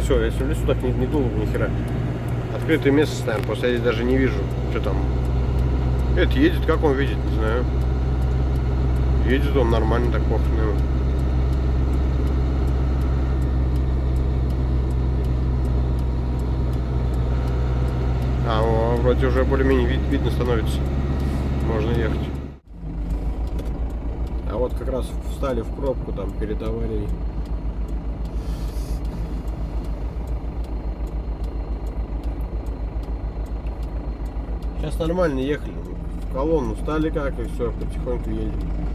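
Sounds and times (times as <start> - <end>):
faint high ticking: 0.0 - 38.9
truck engine and road drone: 0.0 - 38.9.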